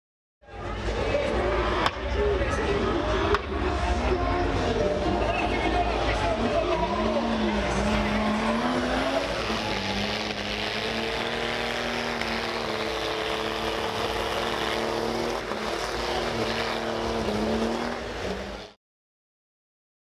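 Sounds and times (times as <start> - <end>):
tyres spinning in a burnout: 0.7 - 18.8
car engine at high revs: 4.6 - 18.8.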